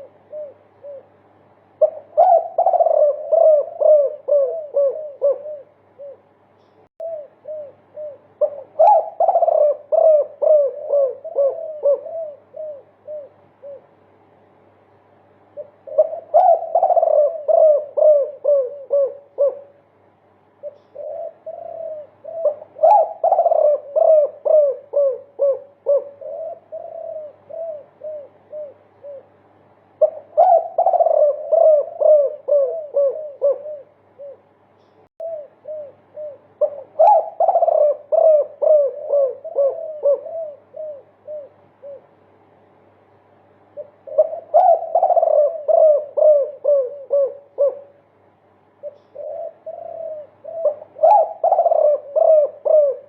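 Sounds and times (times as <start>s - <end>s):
dove cooing: 0.0s - 14.1s, 15.5s - 19.9s, 20.6s - 42.3s, 43.6s - 53.0s.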